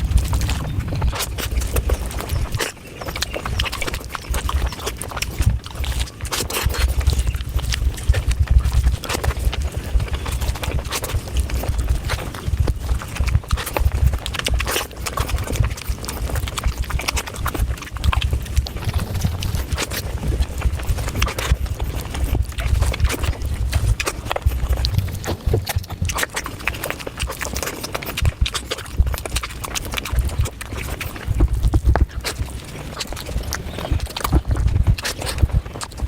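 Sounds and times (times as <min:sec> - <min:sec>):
low rumble: 0:00.0 - 0:02.7, 0:18.3 - 0:21.3, 0:22.6 - 0:27.4
chewing with mouth clicks: 0:00.0 - 0:36.0.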